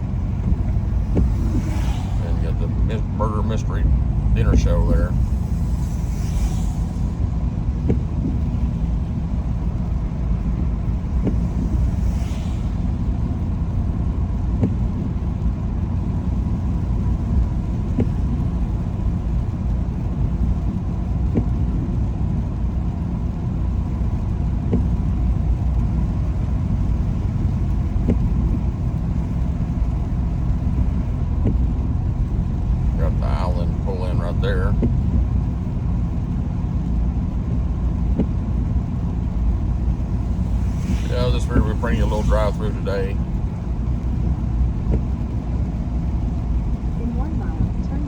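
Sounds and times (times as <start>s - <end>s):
car cabin road rumble: 0.0s - 48.0s
brief hiss: 5.3s - 7.2s, 11.3s - 13.3s, 40.4s - 43.0s.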